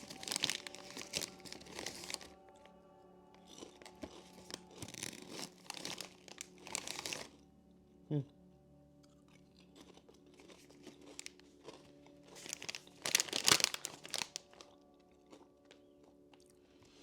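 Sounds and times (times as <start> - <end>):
chip bag crinkling: 0.0 - 2.4, 3.4 - 7.4, 9.8 - 15.8.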